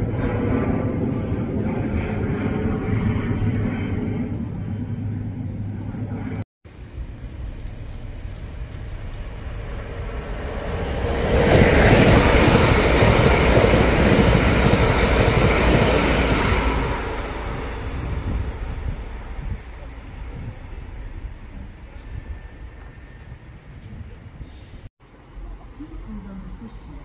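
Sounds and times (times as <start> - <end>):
propeller drone: 0.0 - 23.0
electric train passing: 6.7 - 27.0.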